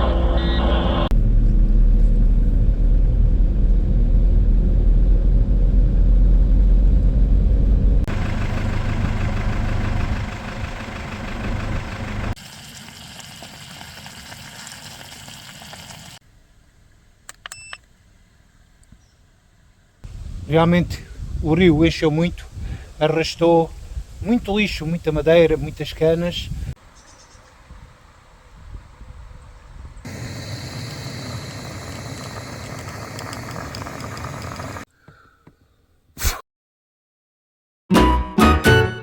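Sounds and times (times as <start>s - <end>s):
engine humming: 0.0s - 12.4s, 16.2s - 20.7s, 30.0s - 34.9s.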